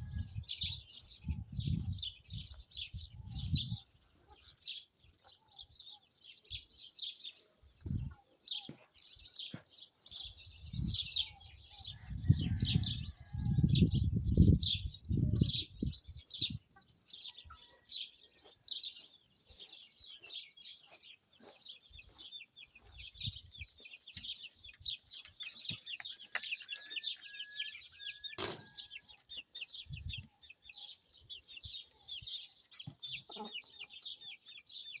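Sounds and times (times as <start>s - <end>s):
wind rumble on microphone: 0.0s - 3.9s, 7.8s - 8.2s, 10.4s - 16.7s, 29.7s - 30.3s
small birds chirping: 0.0s - 35.0s.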